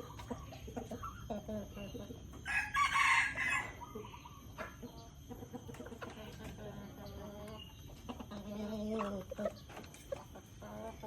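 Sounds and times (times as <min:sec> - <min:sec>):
chickens clucking softly: 0:00.0 - 0:11.0.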